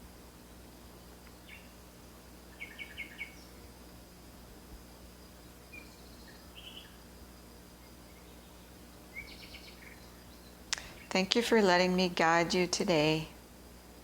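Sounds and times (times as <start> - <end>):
birds chirping: 2.5 - 3.7, 7.9 - 13.3.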